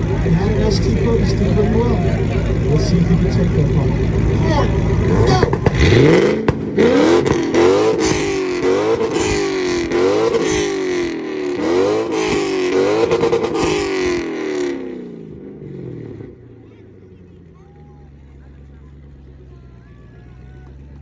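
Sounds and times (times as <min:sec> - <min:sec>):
exhaust crackling pops: 0:00.0 - 0:11.2
car engine revving: 0:00.0 - 0:21.0.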